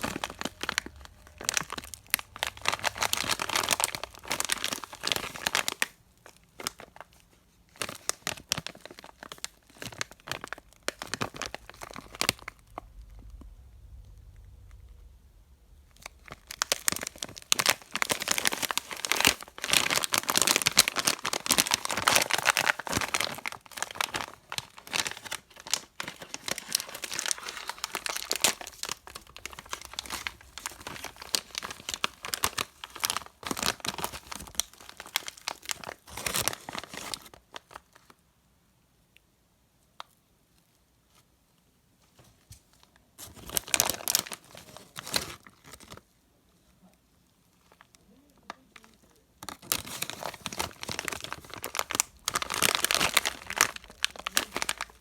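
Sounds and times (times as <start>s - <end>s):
plastic wrappers crinkling: 0.0s - 13.5s, 15.9s - 38.2s, 42.2s - 46.2s, 47.5s - 55.0s.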